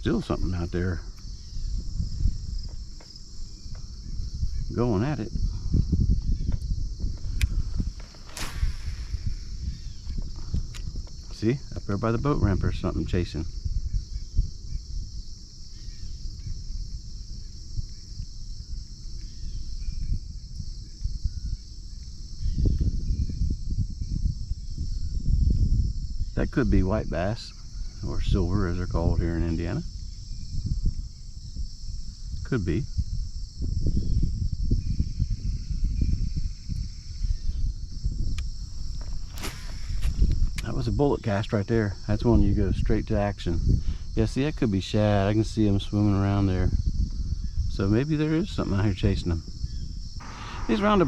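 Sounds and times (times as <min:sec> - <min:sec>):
crickets chirping: 0:00.0 - 0:51.0
insects calling: 0:00.0 - 0:51.0
fishing rod swish: 0:08.0 - 0:09.4, 0:39.1 - 0:40.3
faint bird chirps: 0:15.7 - 0:16.6, 0:20.8 - 0:25.1, 0:49.0 - 0:51.0
low rumbling noise: 0:50.2 - 0:51.0.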